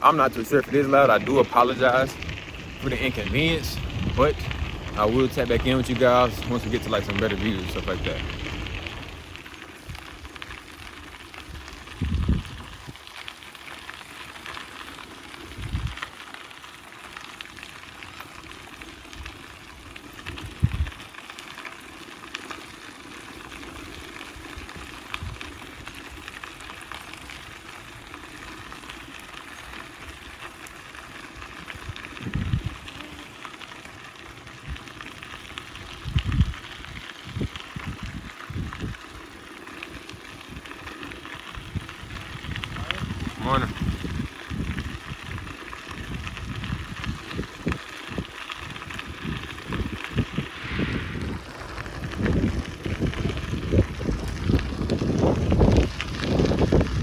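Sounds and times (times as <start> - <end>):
wind buffeting microphone: 0.0 - 13.0, 15.4 - 16.0, 19.1 - 21.0, 31.3 - 33.1, 34.5 - 39.2, 41.5 - 57.0
rushing hiss of bicycle ride: 0.0 - 57.0.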